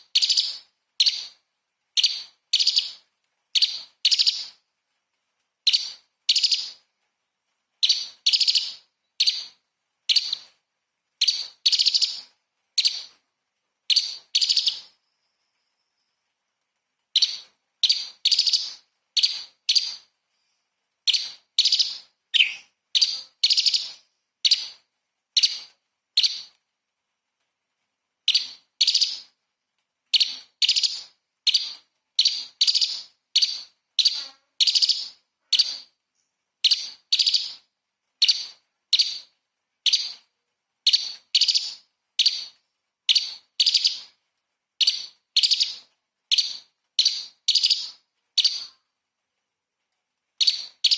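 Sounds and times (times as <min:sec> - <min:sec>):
bird calling in sharp high notes: 0:22.4 - 0:22.7.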